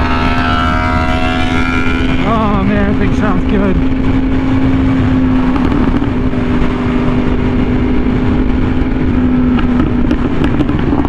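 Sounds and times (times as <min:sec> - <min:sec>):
motorcycle engine at high speed: 0:00.0 - 0:11.0
wind noise: 0:00.0 - 0:11.0.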